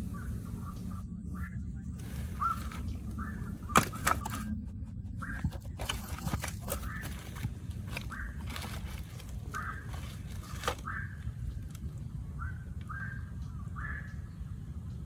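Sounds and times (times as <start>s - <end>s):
steady low rumble: 0.0s - 15.0s
short bird calls: 2.0s - 4.2s, 6.7s - 15.0s.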